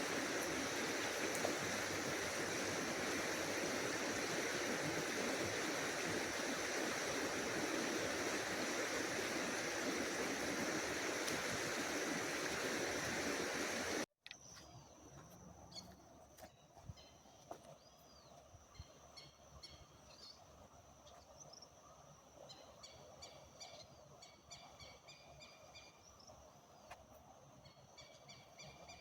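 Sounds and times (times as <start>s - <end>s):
water rushing at a waterfall: 0.0s - 14.1s.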